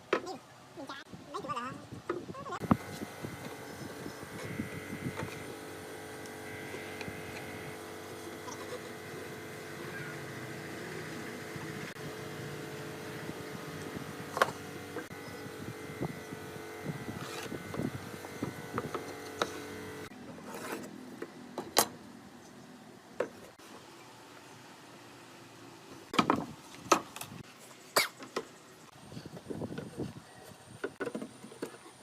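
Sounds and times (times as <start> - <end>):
steady machine hum: 2.6 - 20.4.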